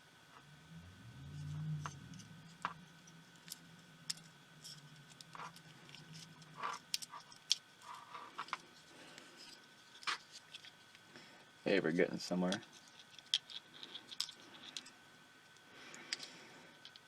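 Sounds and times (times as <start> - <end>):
low hum: 0.0 - 11.6
tools clicking and scratching: 12.5 - 15.0.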